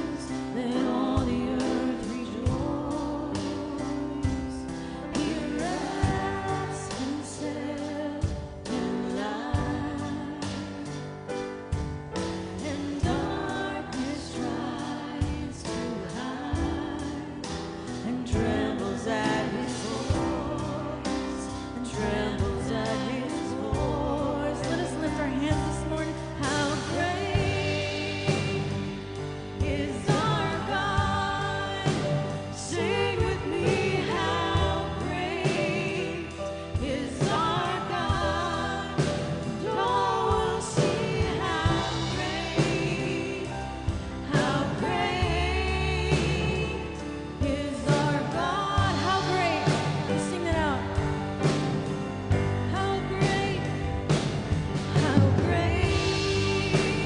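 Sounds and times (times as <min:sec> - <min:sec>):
band and singers performing: 0:00.0 - 0:57.0
steady drums: 0:00.0 - 0:57.0.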